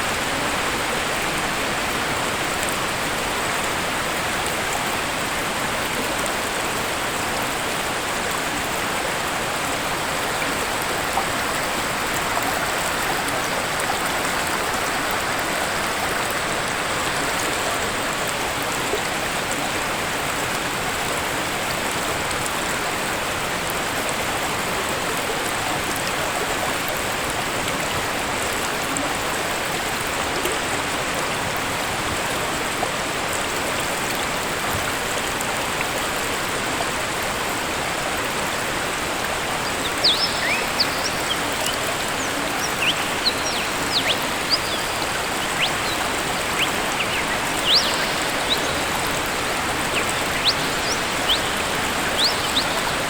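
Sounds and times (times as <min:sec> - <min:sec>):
waterfall roaring: 0:37.3 - 0:53.0
high bird chirps: 0:39.7 - 0:53.0.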